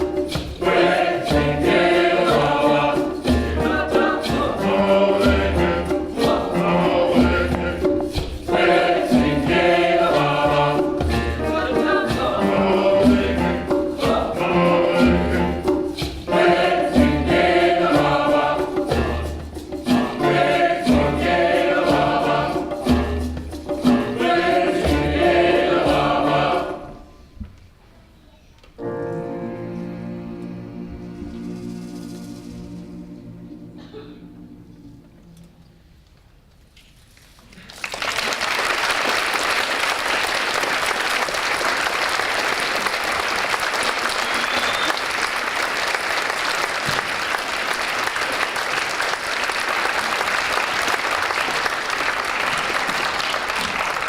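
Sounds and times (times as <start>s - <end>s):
large choir singing: 0.0s - 27.1s, 29.3s - 35.3s.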